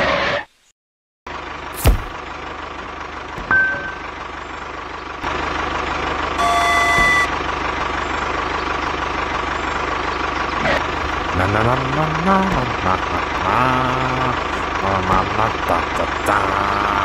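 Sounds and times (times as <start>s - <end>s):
mini tractor running: 1.3s - 17.0s
horn-like beep: 6.4s - 7.4s
short beep: 6.4s - 7.4s.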